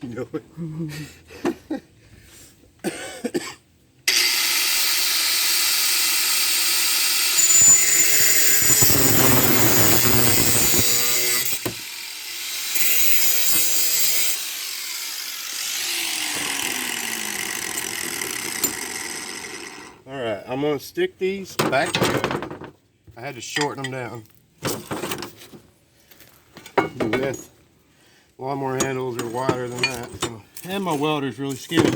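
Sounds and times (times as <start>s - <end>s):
power saw cutting steel tube: 4.1s - 20.0s.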